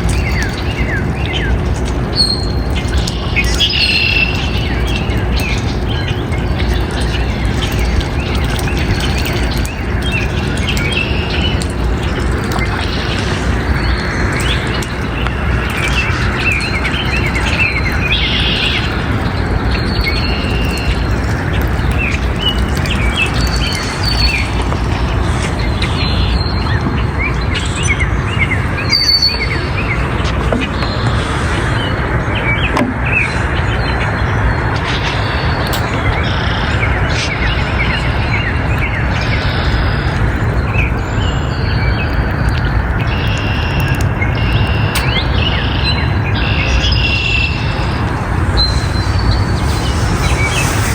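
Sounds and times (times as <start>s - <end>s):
birds chirping: 0.0s - 50.9s
loud steady background noise: 0.0s - 50.9s
low rushing background noise: 46.0s - 50.9s
buzzy bird trill: 46.9s - 50.9s.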